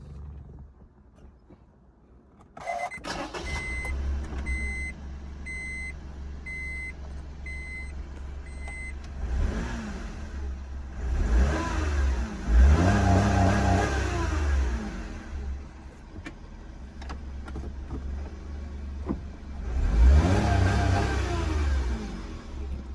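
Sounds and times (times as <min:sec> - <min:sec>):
car engine starting and idling: 0:02.3 - 0:22.9
dashboard warning chime beeping: 0:02.6 - 0:09.0
engine revving: 0:09.0 - 0:15.5, 0:19.6 - 0:22.8.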